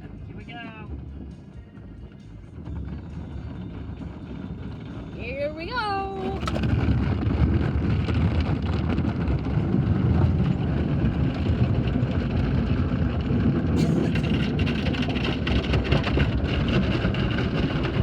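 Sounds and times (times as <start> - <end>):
car wash water and machinery rumble: 0.0 - 18.0.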